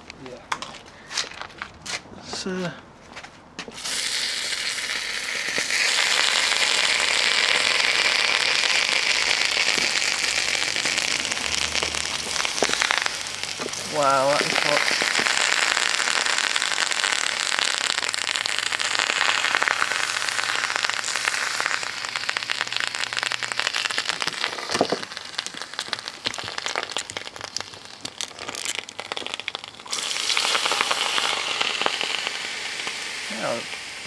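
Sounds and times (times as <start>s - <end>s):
fire crackling and popping: 3.7s - 34.0s
hiss: 3.8s - 26.9s, 29.9s - 34.0s
rushing burst: 4.9s - 24.9s.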